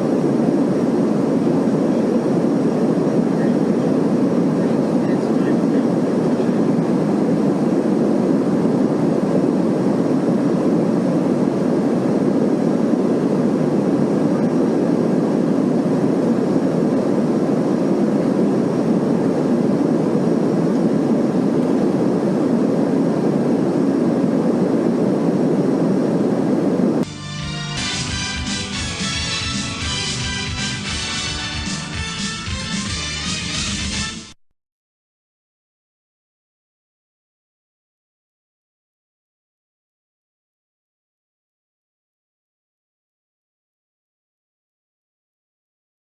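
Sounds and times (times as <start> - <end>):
airliner cabin drone: 0.0 - 34.4.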